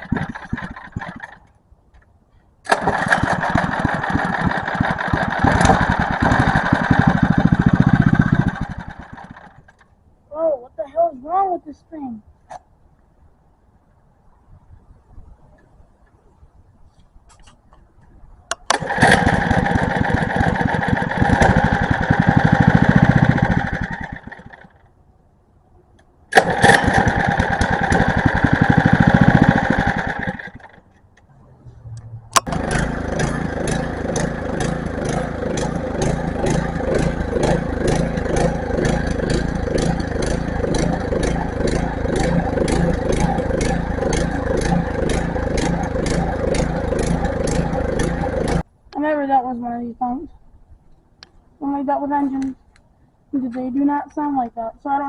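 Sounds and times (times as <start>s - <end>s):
small gas engine running rough: 0.0s - 1.4s, 2.7s - 9.8s, 18.7s - 24.8s, 26.3s - 30.8s, 31.4s - 48.6s.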